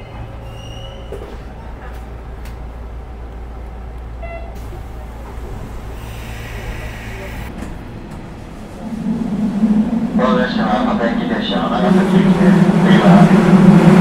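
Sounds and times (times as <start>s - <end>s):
electric train rumbling on rails: 0.0s - 14.0s
hiss: 5.9s - 7.5s.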